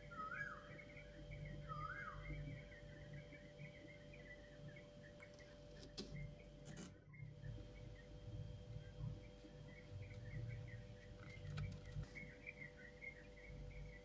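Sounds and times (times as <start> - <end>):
birds chirping and warbling: 0.0 - 14.0
steady low hum: 0.0 - 14.0.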